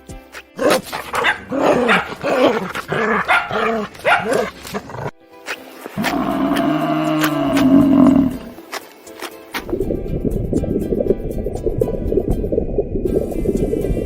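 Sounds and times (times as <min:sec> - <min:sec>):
dog barking: 0:00.6 - 0:05.2
long steady animal call: 0:06.0 - 0:08.6.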